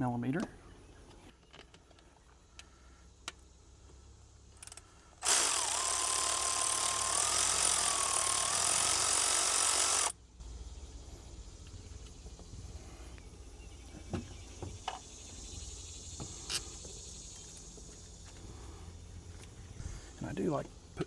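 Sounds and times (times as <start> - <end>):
power tool motor running: 4.6 - 10.2.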